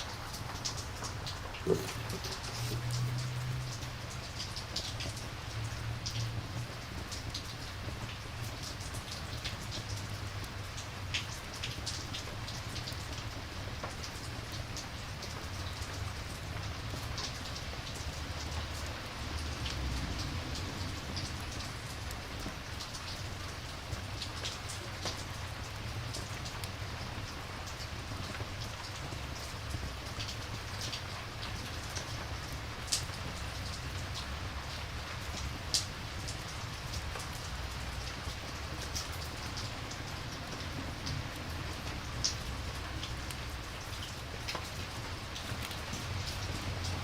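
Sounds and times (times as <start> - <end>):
campfire crackling: 0.0 - 5.8, 41.3 - 47.0
rain hissing: 0.0 - 47.0.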